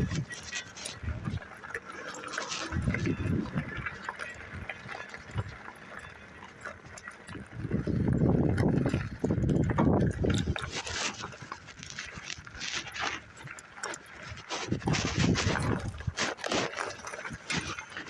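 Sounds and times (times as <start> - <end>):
microphone rubbing noise: 0.0 - 1.5, 2.4 - 3.9, 14.3 - 18.0
wind rumbling on microphone: 0.0 - 18.0.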